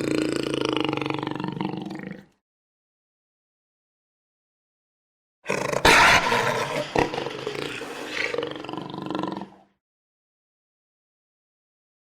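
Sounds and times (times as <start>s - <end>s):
jaguar growling roar: 5.5s - 9.7s.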